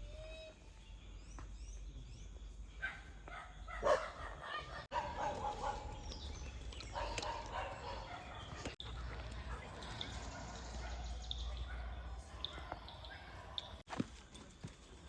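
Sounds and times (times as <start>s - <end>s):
dog barking: 2.8s - 6.2s, 6.9s - 13.8s.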